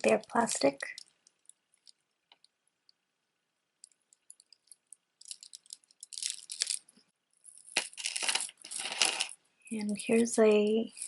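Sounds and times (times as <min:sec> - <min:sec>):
plastic beads clicking and rattling: 0:00.0 - 0:03.0, 0:03.8 - 0:11.0.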